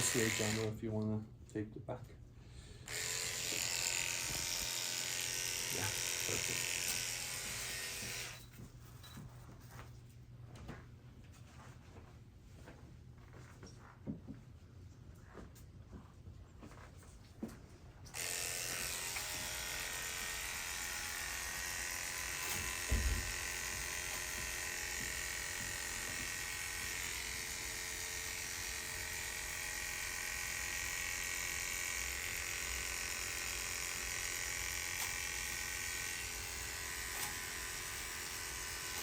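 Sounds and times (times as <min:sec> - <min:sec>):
electric hair clipper running: 0:00.0 - 0:00.8, 0:02.8 - 0:08.4, 0:18.1 - 0:39.0.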